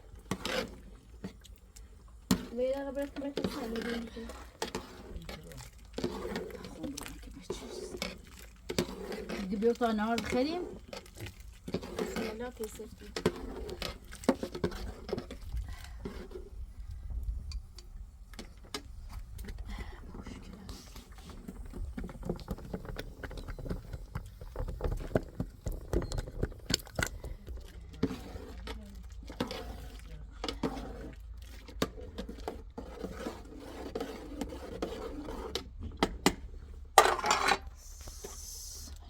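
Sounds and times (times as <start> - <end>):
dishes and utensils clinking: 37.0 - 37.7
dishes clattering: 37.0 - 37.7.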